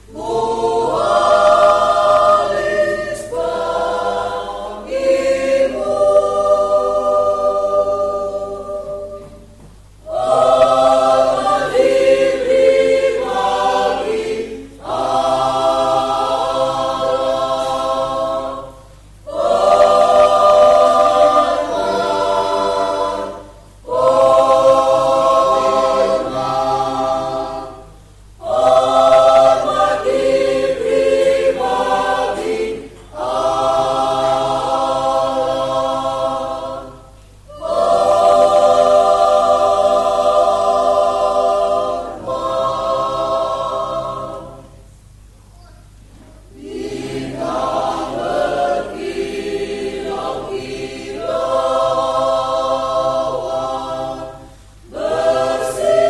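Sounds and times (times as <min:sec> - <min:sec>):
mixed choir singing a hymn: 0:00.0 - 0:45.0, 0:46.1 - 0:56.0.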